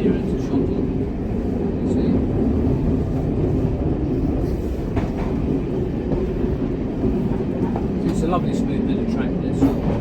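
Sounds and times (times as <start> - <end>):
railcar running rumble: 0.0 - 10.0.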